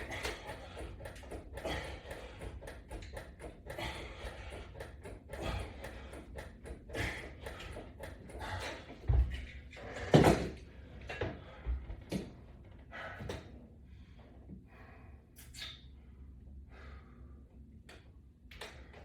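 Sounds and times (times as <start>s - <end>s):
man breathing hard: 0.0s - 9.4s, 12.9s - 15.4s, 16.0s - 17.7s.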